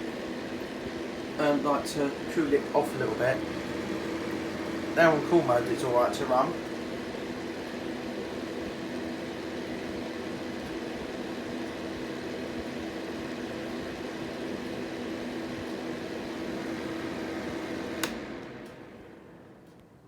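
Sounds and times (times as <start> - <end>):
fan heater whirring: 0.0 - 20.0
switch click: 18.0 - 18.8.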